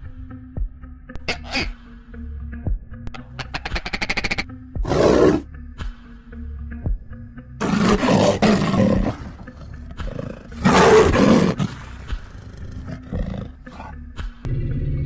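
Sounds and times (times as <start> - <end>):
deep animal roars: 4.8 - 5.4, 7.6 - 14.0
growling rumbles: 4.8 - 5.4, 7.6 - 14.0.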